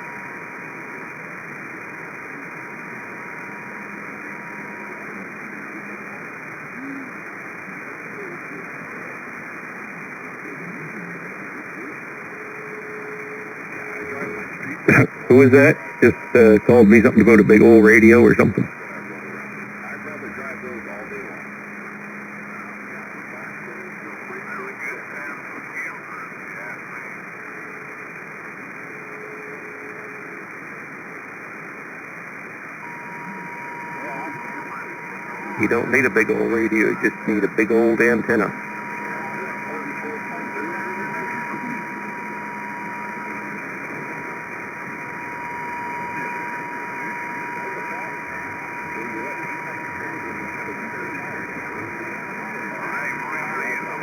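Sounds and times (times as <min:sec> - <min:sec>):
radio static hiss: 0:00.0 - 0:54.0
garbled radio voices: 0:13.7 - 0:21.5, 0:32.8 - 0:54.0
steady whistle tone: 0:32.8 - 0:54.0.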